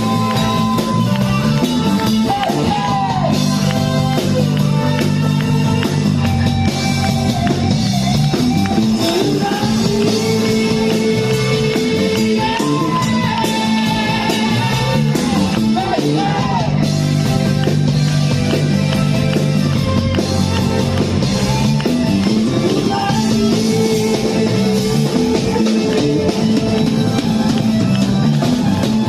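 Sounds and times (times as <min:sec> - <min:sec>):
rock band playing: 0:00.0 - 0:29.0
person singing: 0:08.8 - 0:16.8, 0:22.4 - 0:26.7.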